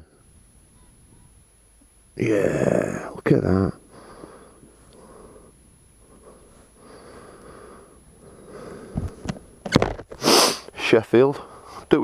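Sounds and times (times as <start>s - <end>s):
quiet breathing: 3.8s - 12.0s.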